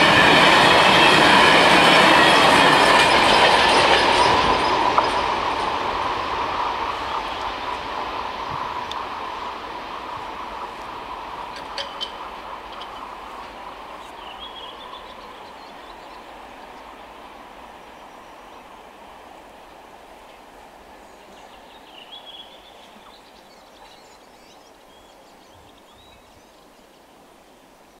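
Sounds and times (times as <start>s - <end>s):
freight train rumbling on rails: 0.0s - 27.9s
bird chirping: 11.5s - 18.7s, 21.0s - 27.1s.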